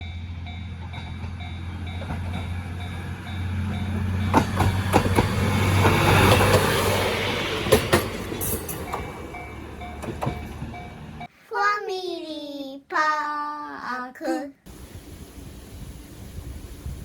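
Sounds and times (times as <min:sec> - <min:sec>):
level crossing warning bell: 0:00.0 - 0:06.5, 0:07.1 - 0:11.3
diesel railcar engine drone: 0:00.0 - 0:11.3
wheels clacking over rail joints: 0:00.4 - 0:11.3.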